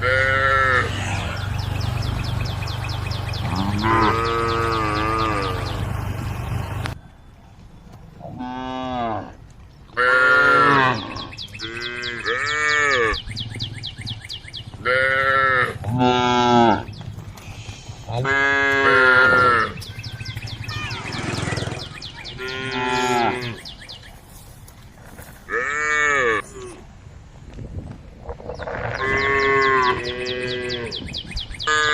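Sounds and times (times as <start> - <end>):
cows mooing: 0.0 - 7.0, 8.3 - 9.4, 10.0 - 13.2, 14.8 - 16.9, 18.0 - 23.7, 25.5 - 26.8, 28.6 - 31.0.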